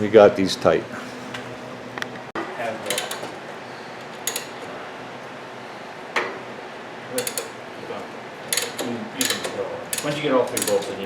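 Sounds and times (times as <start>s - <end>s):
metal hand tools clinking: 8.5s - 11.0s.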